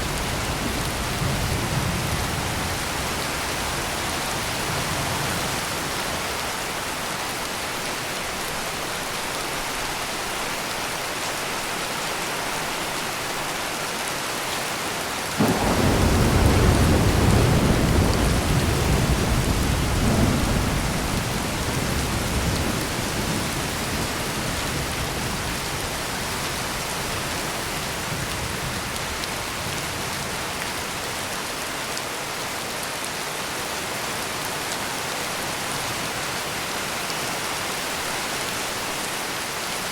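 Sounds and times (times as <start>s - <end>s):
heavy rain: 0.0s - 39.9s
thunder clap rolling: 15.4s - 24.0s.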